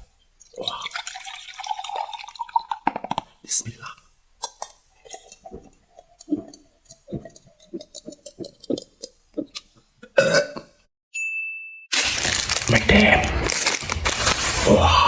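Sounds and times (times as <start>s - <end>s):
wet mouth chewing smacks: 4.6s - 9.7s.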